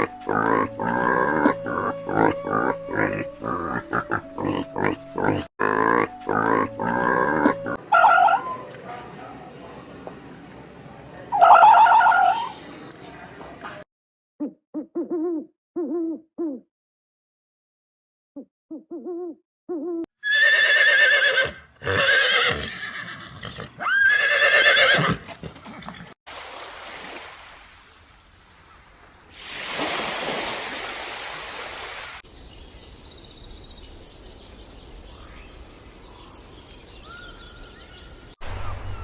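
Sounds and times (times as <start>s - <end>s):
quavering animal calls: 0.0s - 8.8s, 11.3s - 12.6s
rushing noise: 38.4s - 39.0s.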